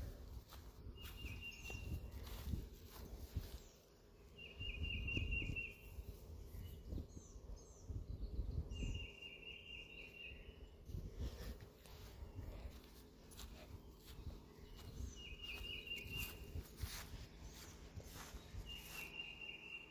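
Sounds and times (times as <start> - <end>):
faint high chirps: 14.0 - 19.9
songbird trilling: 14.8 - 16.5.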